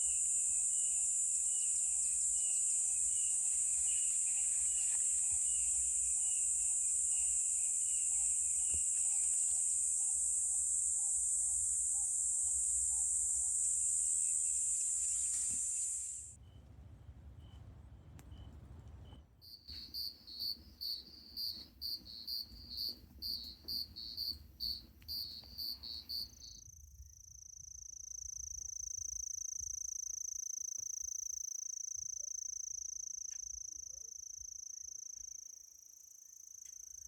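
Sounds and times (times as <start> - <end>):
high-pitched insect drone: 0.0 - 16.4.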